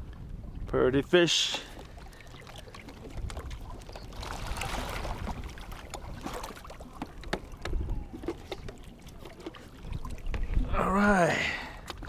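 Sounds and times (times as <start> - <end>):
water splashing and trickling: 0.0 - 12.0
knocks and clicks on boat: 1.4 - 10.7, 11.7 - 12.0.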